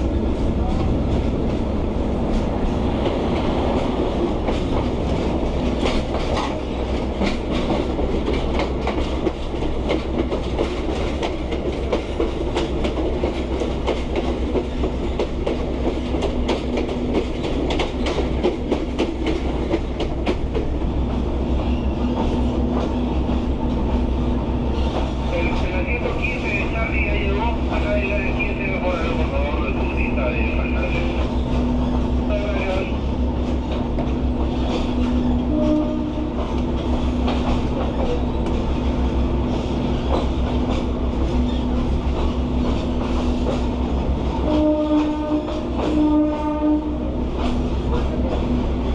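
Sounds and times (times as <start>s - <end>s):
train carriage rumble: 0.0s - 48.9s.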